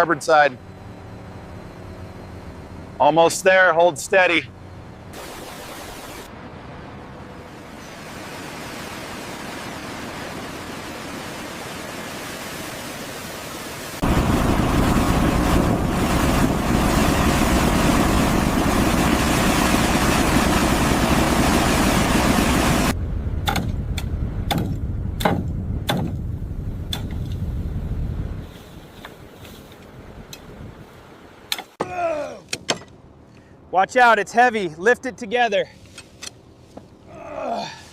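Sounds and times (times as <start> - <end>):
machinery noise: 0.0 - 8.4, 14.0 - 23.4
sharp knocks and clanks: 23.4 - 26.2, 31.5 - 33.0.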